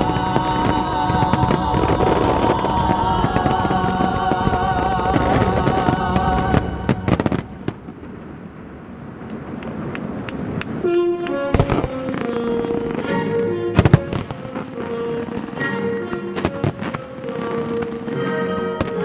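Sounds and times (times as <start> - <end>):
loud soundtrack music: 0.0 - 7.8
fireworks bursting and crackling: 0.0 - 19.0.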